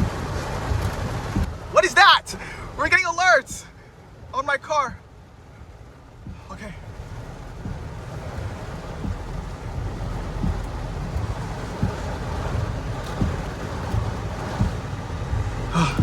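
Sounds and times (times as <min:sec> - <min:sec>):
heavy rain on a car: 0:00.0 - 0:16.0
low rumble: 0:05.0 - 0:16.0.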